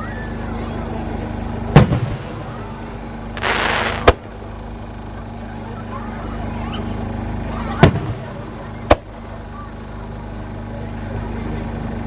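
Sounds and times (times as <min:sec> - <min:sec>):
fireworks boom: 0:01.7 - 0:05.4, 0:07.8 - 0:09.2
firework hiss and crack: 0:01.8 - 0:05.3.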